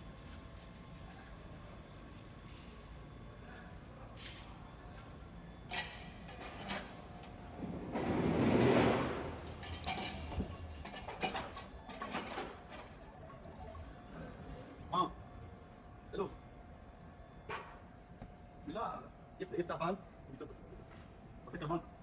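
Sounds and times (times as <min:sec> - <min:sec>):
metal tools clinking: 0:09.5 - 0:12.8.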